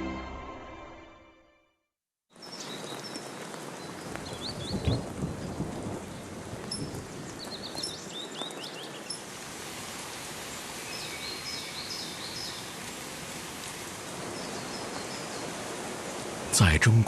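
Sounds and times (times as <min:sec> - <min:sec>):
music: 0:00.0 - 0:01.9
steady rain: 0:02.3 - 0:17.0
birds chirping: 0:02.4 - 0:09.3, 0:10.4 - 0:13.0, 0:14.1 - 0:16.5.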